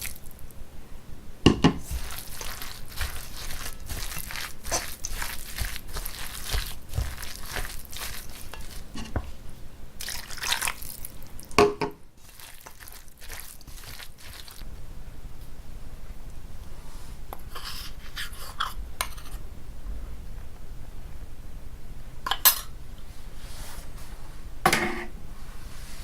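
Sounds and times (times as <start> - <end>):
utensil knock: 1.5 - 1.8
wet mixture squelching in bowl: 1.5 - 14.7
light scraping: 1.8 - 9.4.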